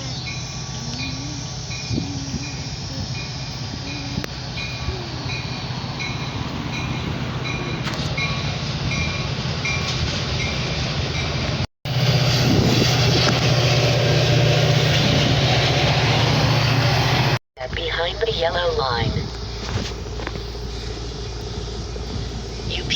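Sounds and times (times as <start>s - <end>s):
railroad warning bell dinging: 0.0s - 17.4s
locomotive drone: 0.0s - 22.9s
train rumble: 0.0s - 22.9s.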